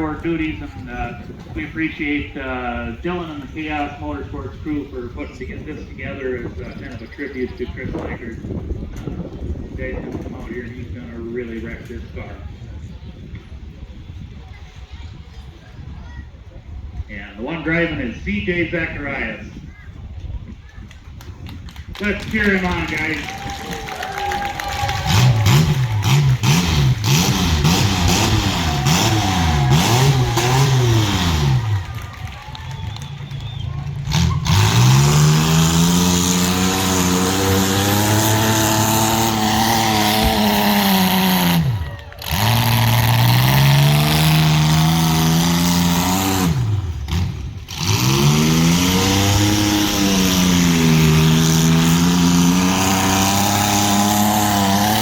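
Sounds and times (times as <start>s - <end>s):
car engine revving hard: 24.2s - 55.0s.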